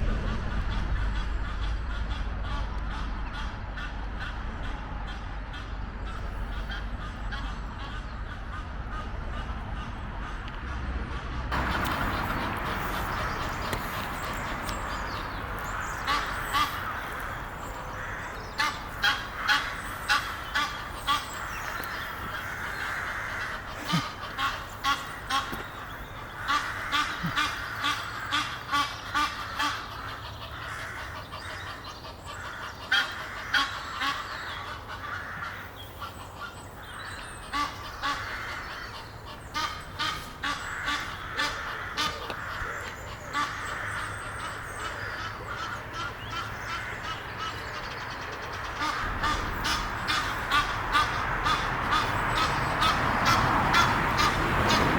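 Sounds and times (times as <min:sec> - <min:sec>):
geese honking: 0:00.5 - 0:54.9.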